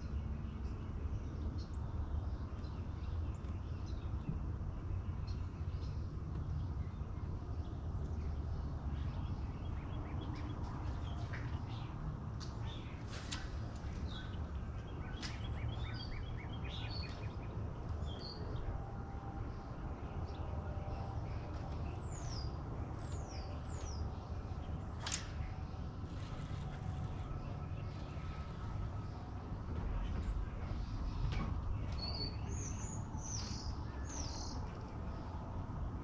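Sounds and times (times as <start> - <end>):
steady low rumble: 2.7 - 36.0
birds chirping and calling: 9.0 - 18.4, 30.2 - 35.4.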